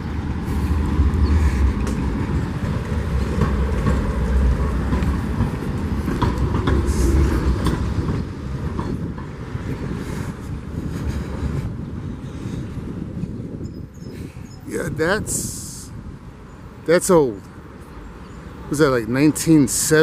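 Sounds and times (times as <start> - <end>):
wheels clacking on track: 0.0 - 13.4
tram rumbling on rails: 0.0 - 20.0.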